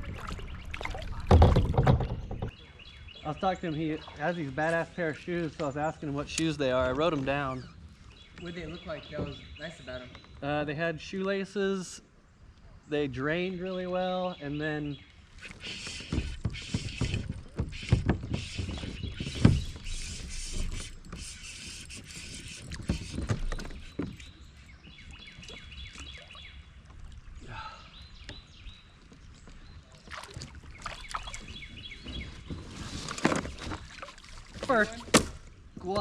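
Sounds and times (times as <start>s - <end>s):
water splashing from paddling: 0.0s - 2.6s, 29.9s - 35.5s
knocks against kayak hull: 1.2s - 2.6s, 34.6s - 36.0s.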